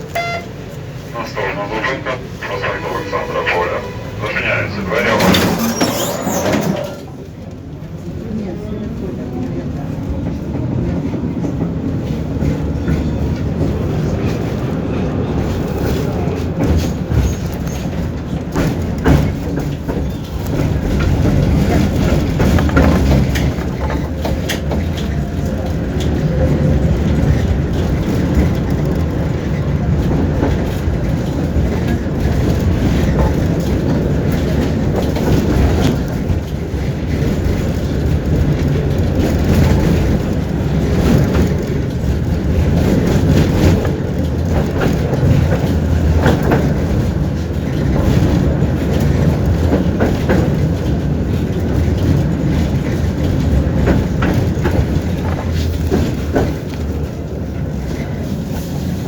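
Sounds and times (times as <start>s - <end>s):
tram wheels rumbling on track: 0.0s - 59.0s
wheels clicking over rail joints: 15.5s - 59.0s.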